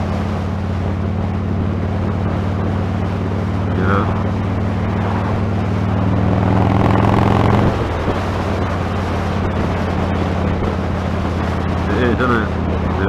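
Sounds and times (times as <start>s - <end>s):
motorcycle engine running: 0.0s - 13.0s
wind noise on microphone: 0.0s - 13.0s.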